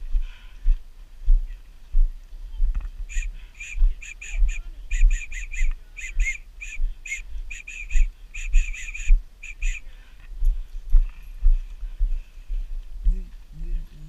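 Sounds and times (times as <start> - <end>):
bird chirping: 3.0 - 9.9.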